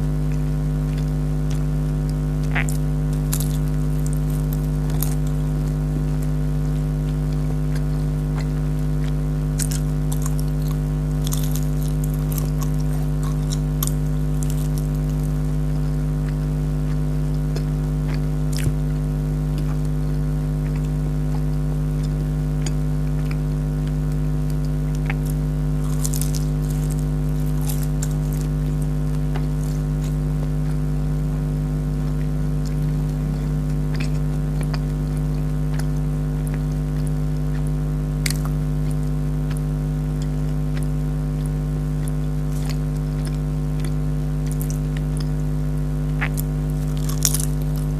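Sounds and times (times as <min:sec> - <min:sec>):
chewing with sticky clicks: 0:00.0 - 0:47.9
steady hum: 0:00.0 - 0:47.9.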